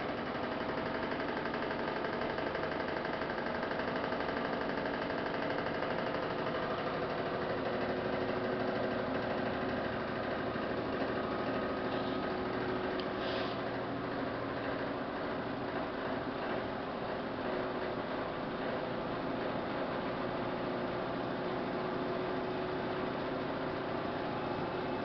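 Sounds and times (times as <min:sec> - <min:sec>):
washing machine running: 0:00.0 - 0:25.0.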